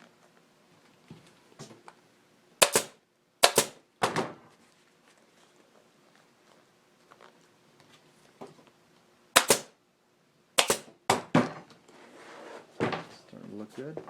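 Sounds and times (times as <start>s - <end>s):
staple gun snapping: 2.6s - 3.8s, 9.4s - 9.7s, 10.6s - 10.9s.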